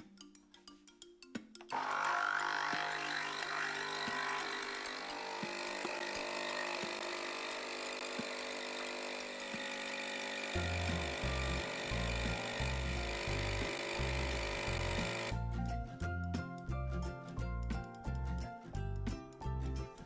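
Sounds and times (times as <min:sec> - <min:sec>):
coffee machine pump humming: 0:01.8 - 0:15.3
pulsing bass: 0:10.6 - 0:20.0.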